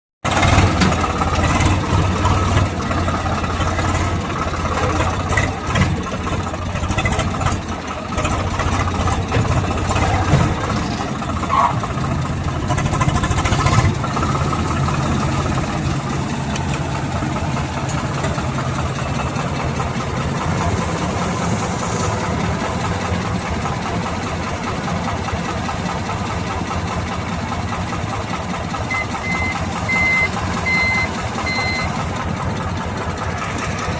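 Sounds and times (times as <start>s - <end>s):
combine harvester engine humming: 0.3s - 33.9s
reversing beeper: 28.9s - 32.0s.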